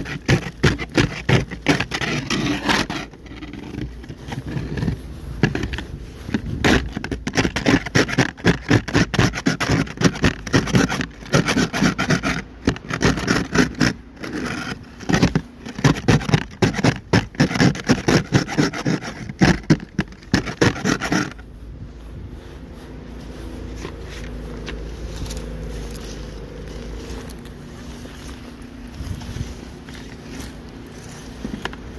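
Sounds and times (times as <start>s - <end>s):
ice scraper scraping ice: 0.0s - 21.6s, 23.4s - 31.9s
steady low hum: 18.9s - 31.9s.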